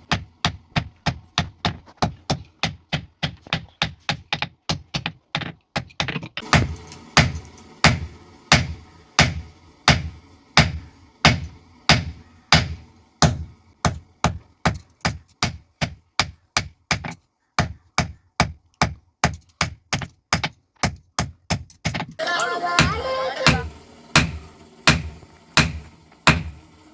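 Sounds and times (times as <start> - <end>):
hammer blows on steel anvil: 22.8 - 26.9.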